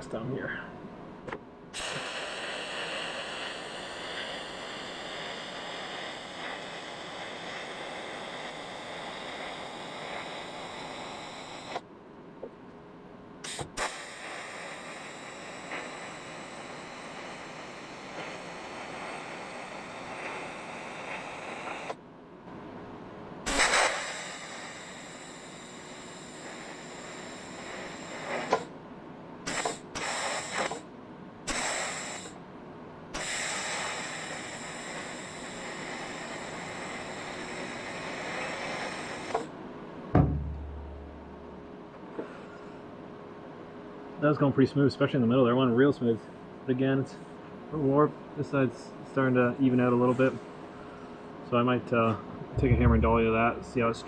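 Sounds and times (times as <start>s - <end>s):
welding arc hissing: 1.8s - 11.9s, 13.4s - 22.0s, 23.5s - 28.8s, 29.5s - 30.9s, 31.5s - 32.4s, 33.1s - 39.6s.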